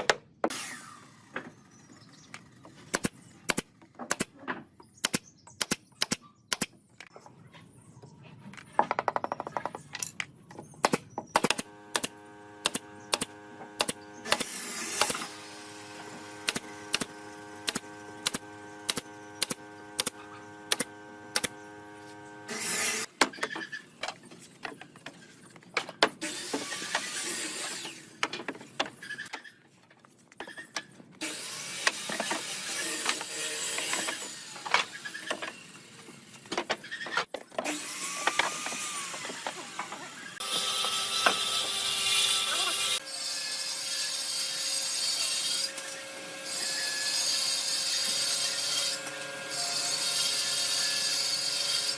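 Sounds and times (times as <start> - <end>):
rasping tool work: 31.2 - 51.9.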